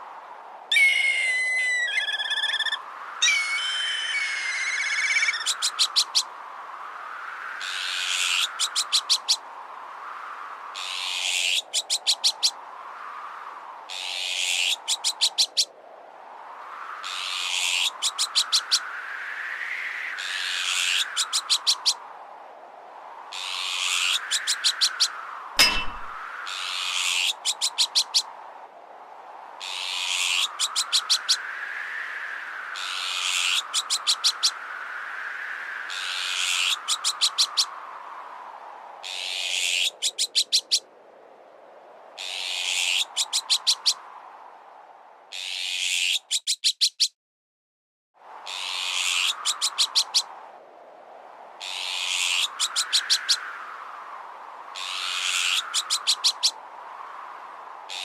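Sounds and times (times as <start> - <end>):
whistling tone: 0.7 - 5.4
magpie alarm calls: 0.7 - 6.2.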